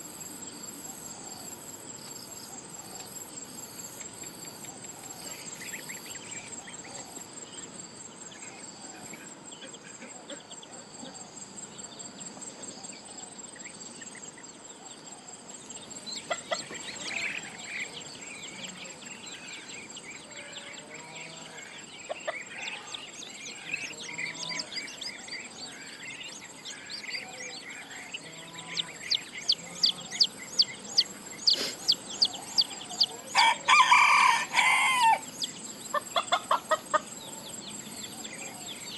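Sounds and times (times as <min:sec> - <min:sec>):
insect chirring: 0:11.2 - 0:38.9
chickens clucking: 0:16.2 - 0:18.9, 0:20.8 - 0:33.8, 0:34.6 - 0:37.6.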